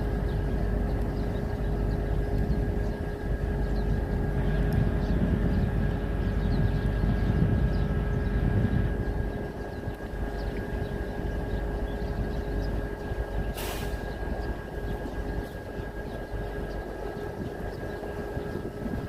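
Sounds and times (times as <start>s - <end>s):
constant hum: 0.0s - 19.0s
low rumble and hiss: 0.0s - 19.0s
short burst of hiss: 13.6s - 14.1s.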